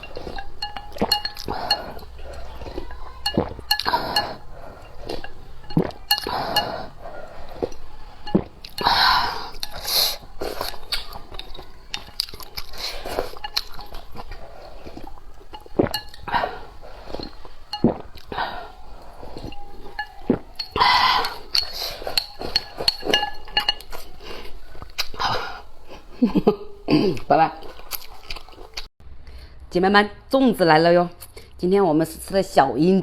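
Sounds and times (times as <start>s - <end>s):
chewing: 0.0s - 28.9s
utensils clinking against a bowl: 0.0s - 28.9s.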